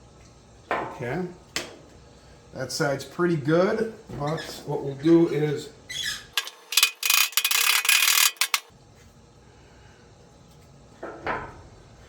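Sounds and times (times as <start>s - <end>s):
metal scraping and rattling: 6.3s - 8.7s.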